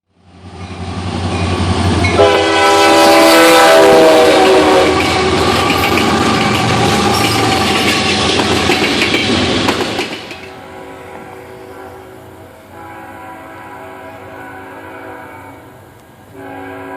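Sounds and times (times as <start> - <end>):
diesel locomotive engines running: 0.1 - 16.9
train air horn: 2.0 - 7.6, 10.4 - 16.9
wheels clacking over rail joints: 3.1 - 11.4.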